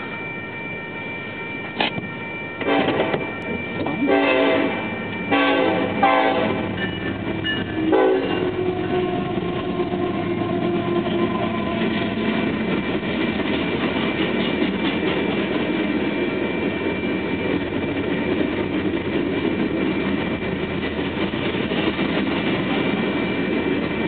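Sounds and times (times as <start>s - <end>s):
train wheels rumbling on rail: 1.6s - 24.0s
locomotive horn blasts: 2.6s - 3.2s, 3.9s - 6.8s, 7.6s - 12.2s.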